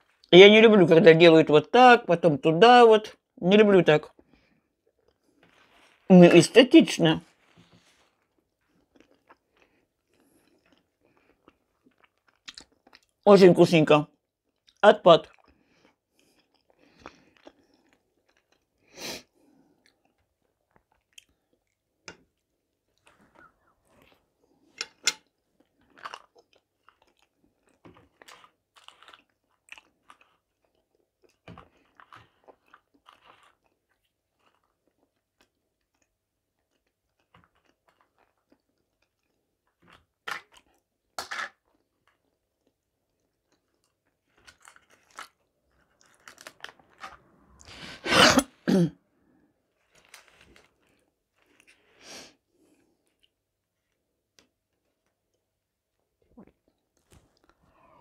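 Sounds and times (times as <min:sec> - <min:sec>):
chewing and mouth sounds: 0:08.1 - 0:13.2, 0:25.2 - 0:40.9.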